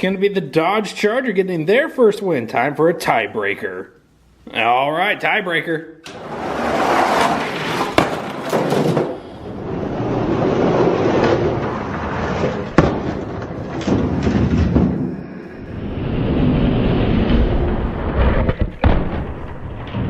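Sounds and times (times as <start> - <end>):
toy trucks rolling on plastic track: 6.1 - 14.7.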